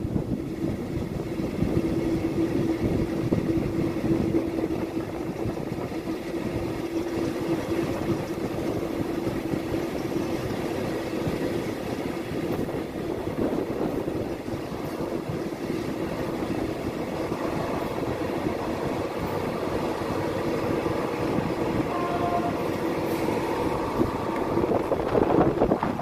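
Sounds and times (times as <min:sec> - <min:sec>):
train wheels rumbling on track: 0:00.0 - 0:26.0
rushing air: 0:07.8 - 0:26.0.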